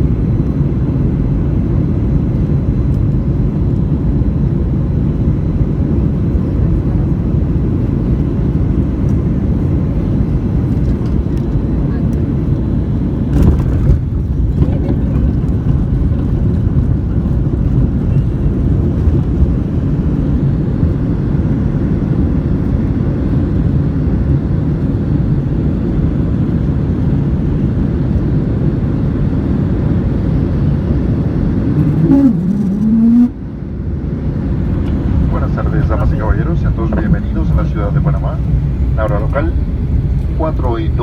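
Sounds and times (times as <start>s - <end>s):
airplane cabin rumble: 0.0s - 41.0s
brief rising tone: 31.8s - 33.4s.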